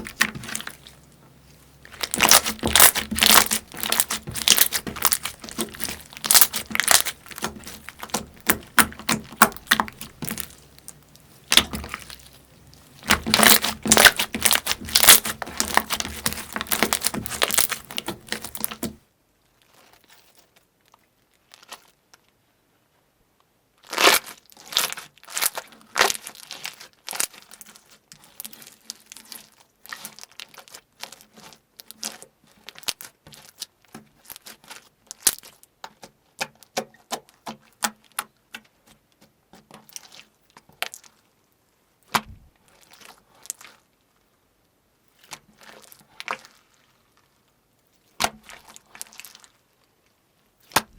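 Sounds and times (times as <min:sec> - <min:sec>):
slime crackling and popping: 0:00.0 - 0:19.0.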